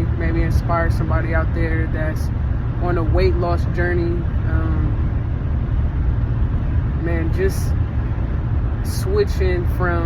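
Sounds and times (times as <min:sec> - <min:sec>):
car cabin rumble: 0:00.0 - 0:10.0.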